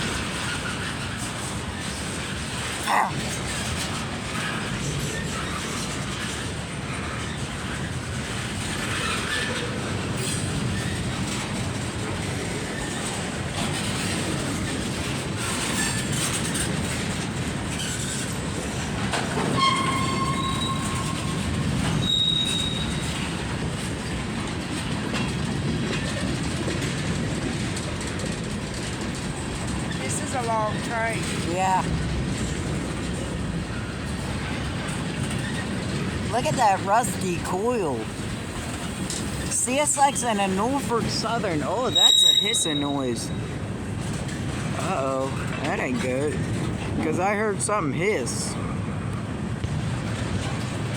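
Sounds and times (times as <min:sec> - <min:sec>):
freight train wheels clattering: 0:00.0 - 0:47.8, 0:48.5 - 0:50.9
wheel squeals: 0:13.8 - 0:17.0, 0:17.7 - 0:24.1, 0:38.6 - 0:45.7.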